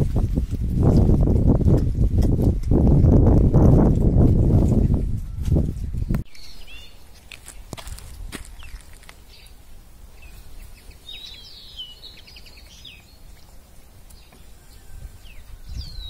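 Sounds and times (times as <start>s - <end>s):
small birds chirping: 5.4s - 16.0s.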